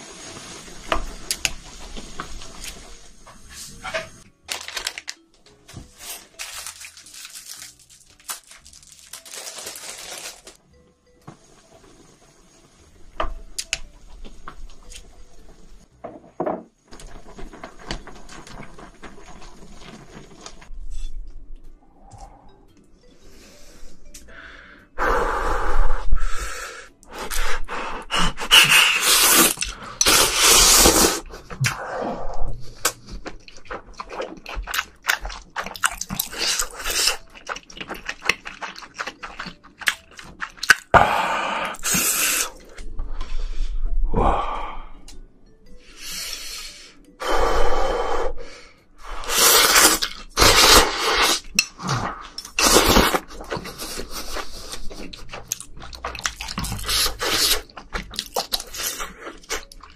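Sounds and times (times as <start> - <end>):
slurping noodles: 27.2 - 33.0, 49.1 - 59.7
chewing: 32.8 - 40.9, 51.4 - 59.9.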